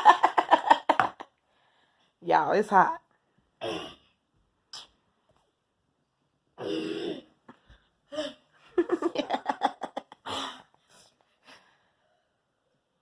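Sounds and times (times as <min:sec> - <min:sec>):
person breathing hard and gasping: 0:06.9 - 0:08.6, 0:10.2 - 0:12.2.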